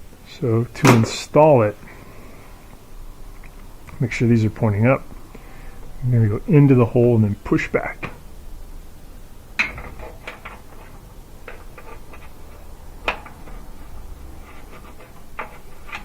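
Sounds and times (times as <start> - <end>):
small clicks and metallic taps: 9.6 - 12.4.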